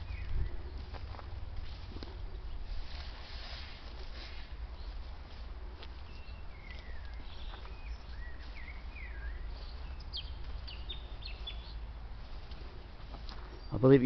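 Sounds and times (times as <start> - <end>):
steady low rumble: 0.0 - 13.6
birds whistling gliding notes: 6.0 - 12.0.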